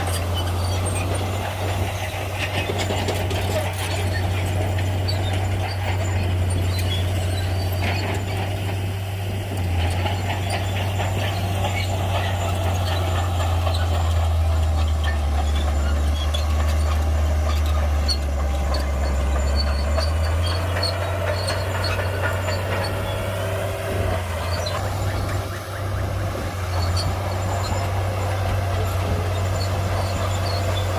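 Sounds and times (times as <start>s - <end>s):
bulldozer diesel engine drone: 0.0s - 30.9s.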